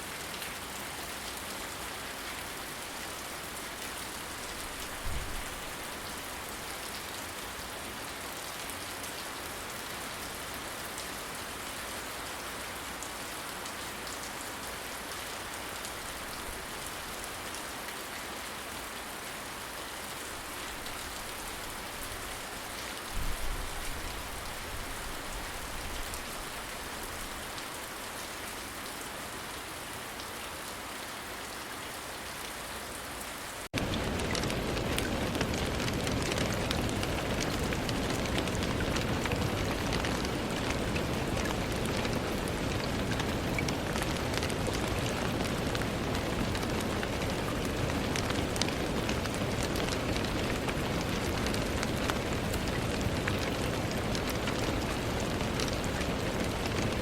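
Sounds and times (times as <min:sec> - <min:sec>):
steady rain falling: 0:00.0 - 0:57.0
distant thunder rumble: 0:33.8 - 0:57.0.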